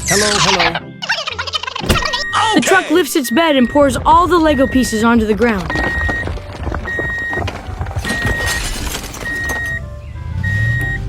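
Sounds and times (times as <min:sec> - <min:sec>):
plastic toy pieces clattering: 0:05.4 - 0:09.8.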